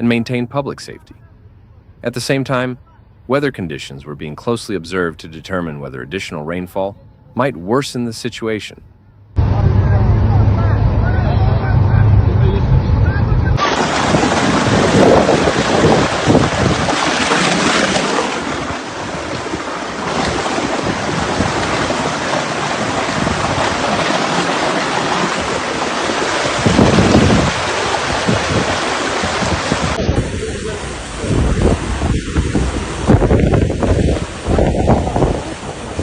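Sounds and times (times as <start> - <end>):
water rushing: 9.4 - 36.0
wind buffeting microphone: 9.4 - 36.0.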